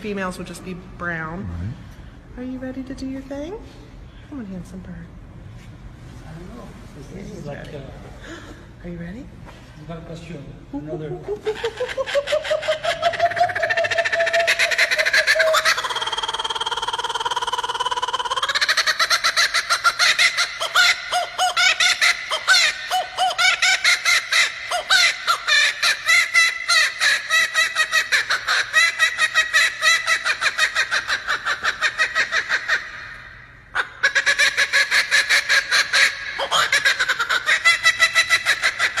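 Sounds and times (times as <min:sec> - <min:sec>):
kookaburra cackling call: 0:11.5 - 0:33.1, 0:33.8 - 0:39.0.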